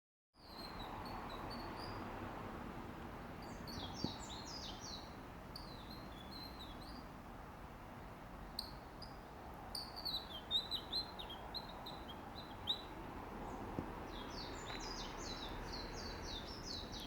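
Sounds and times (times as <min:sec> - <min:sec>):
small songbirds chirping: 0:00.4 - 0:02.5, 0:03.2 - 0:07.2, 0:08.5 - 0:17.0.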